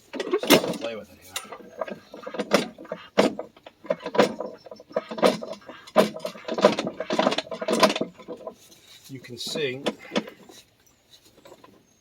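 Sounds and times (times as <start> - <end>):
metal axle parts clanking and scraping: 0.0 - 12.0.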